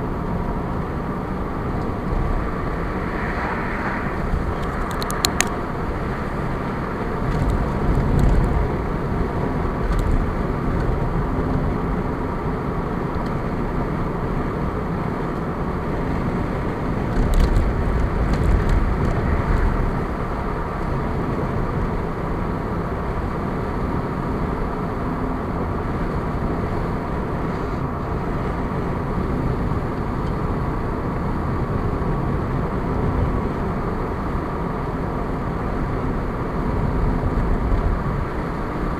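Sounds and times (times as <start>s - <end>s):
low rumbles: 0.0s - 11.4s
car engine and tyre noise: 0.0s - 38.9s.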